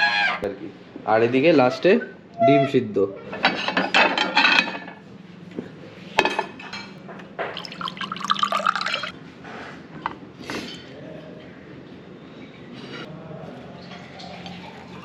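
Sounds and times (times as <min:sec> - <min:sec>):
glass and dishes clinking: 0:03.3 - 0:05.0, 0:06.2 - 0:09.1
liquid pouring into a glass: 0:07.6 - 0:09.1, 0:13.8 - 0:15.0.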